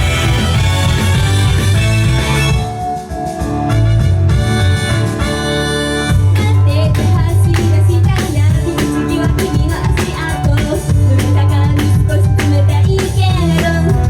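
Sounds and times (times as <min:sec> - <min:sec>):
live pop song with guitar drums: 0:06.1 - 0:14.0.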